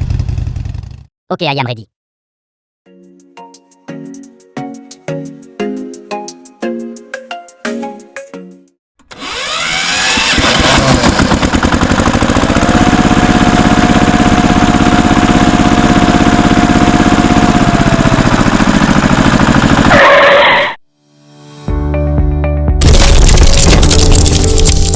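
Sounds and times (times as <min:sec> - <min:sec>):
small engine running: 0:09.0 - 0:20.5.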